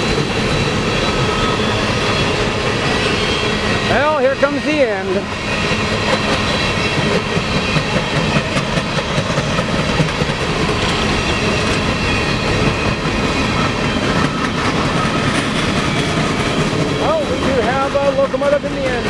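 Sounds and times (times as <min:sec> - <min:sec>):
freight train cars rattling past: 0:00.0 - 0:19.0.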